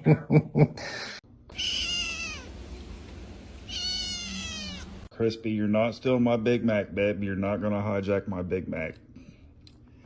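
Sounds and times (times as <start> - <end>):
cat meowing: 1.5 - 2.5, 3.6 - 5.1.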